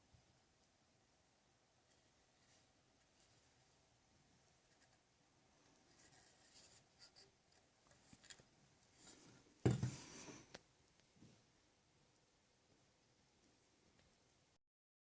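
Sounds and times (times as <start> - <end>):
faint scratching and rubbing: 1.8 - 10.5.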